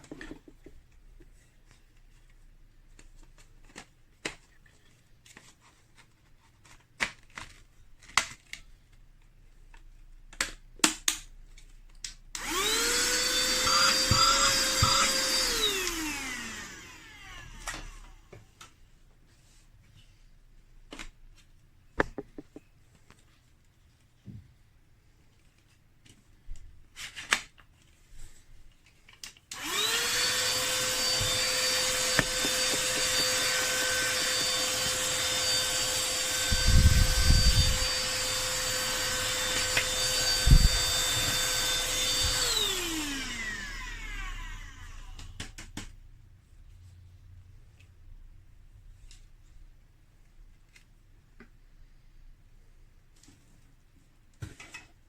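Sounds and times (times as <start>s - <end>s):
handheld vacuum cleaner motor whining: 12.4s - 18.4s, 29.5s - 45.4s
clicks and knocks: 22.0s - 22.7s.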